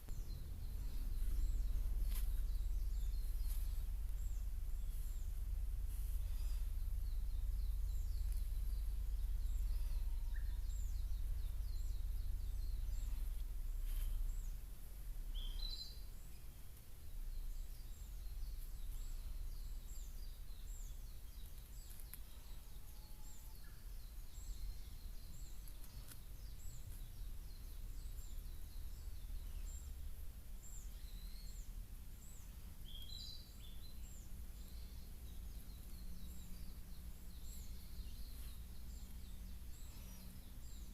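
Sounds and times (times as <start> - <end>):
low rumble: 0.0 - 15.8
small birds chirping: 0.0 - 40.9.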